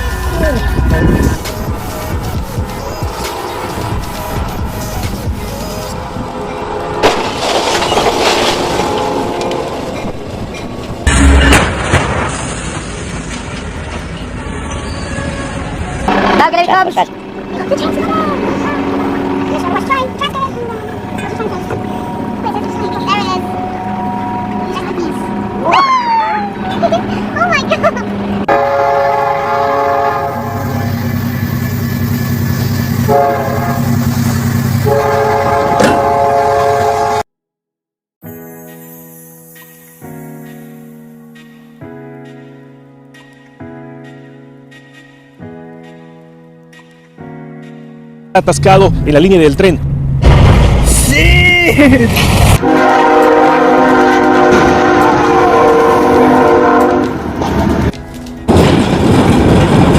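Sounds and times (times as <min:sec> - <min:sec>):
music: 0:00.0 - 0:06.9, 0:38.2 - 0:49.6, 0:57.6 - 0:58.5
train rumbling past: 0:00.0 - 0:37.2, 0:38.3 - 0:59.9
train horn blasts: 0:06.5 - 0:10.0, 0:28.5 - 0:31.0, 0:33.0 - 0:34.1, 0:34.7 - 0:37.2, 0:52.6 - 0:57.4.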